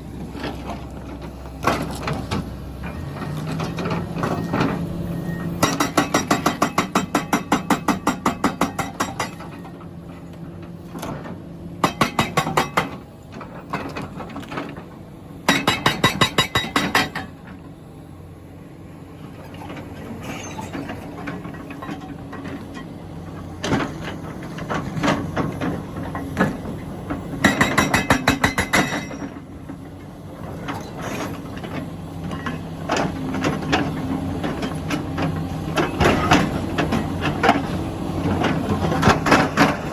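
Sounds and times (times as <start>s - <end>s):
excavator engine running: 0.0s - 39.9s
hydraulic breaker hammering stone: 5.6s - 9.7s, 11.8s - 13.0s, 15.5s - 17.5s, 27.4s - 29.4s.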